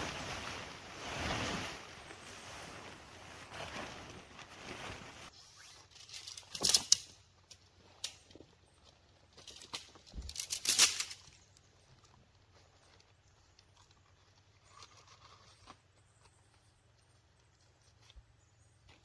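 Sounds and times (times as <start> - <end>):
light wind: 0.0 - 5.3
nylon tent gear rustling: 0.0 - 8.4, 9.3 - 11.4.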